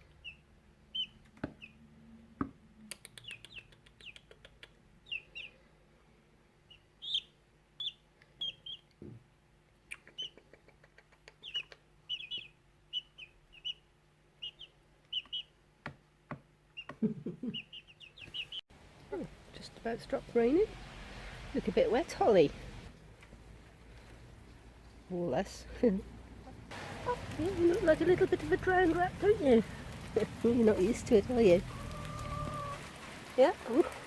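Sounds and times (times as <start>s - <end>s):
chicks peeping: 0.0s - 1.8s, 5.0s - 5.6s, 6.7s - 9.0s, 10.0s - 15.6s, 16.7s - 18.6s, 26.4s - 33.1s.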